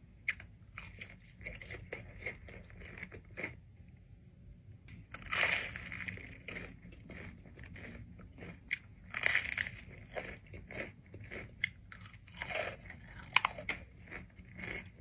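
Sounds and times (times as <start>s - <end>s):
crunchy food chewing: 0.3s - 3.6s, 5.0s - 15.0s.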